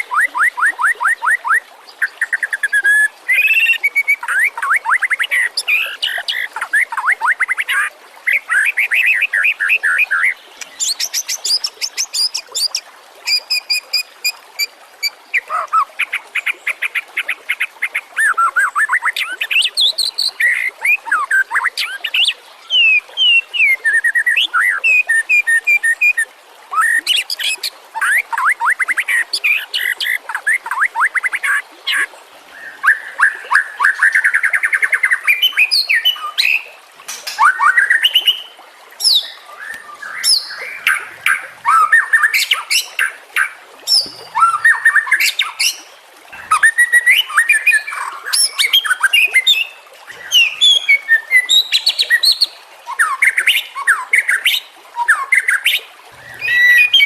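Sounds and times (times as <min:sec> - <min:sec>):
bird singing varied song: 0:31.4 - 0:57.0.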